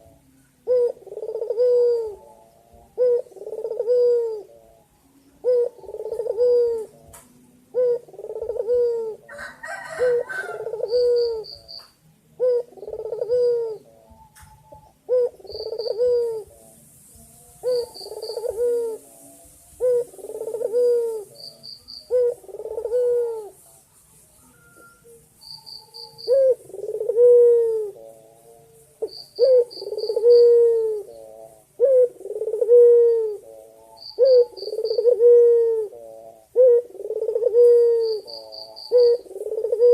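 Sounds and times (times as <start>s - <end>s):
dove cooing: 0.0s - 39.9s
faint high chirps: 23.0s - 27.0s.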